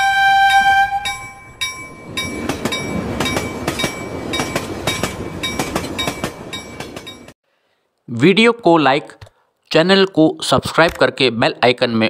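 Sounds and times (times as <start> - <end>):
train wheels clattering over joints: 1.1 - 7.4.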